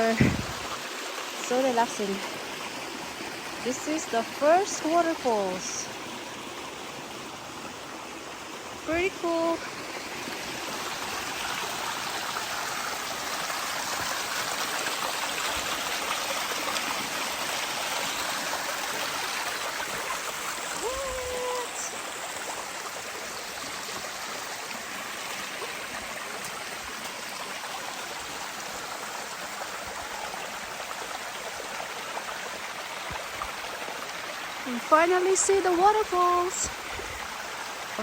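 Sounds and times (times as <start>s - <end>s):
water rushing in creek: 0.0s - 38.0s
low thump: 0.2s - 0.7s.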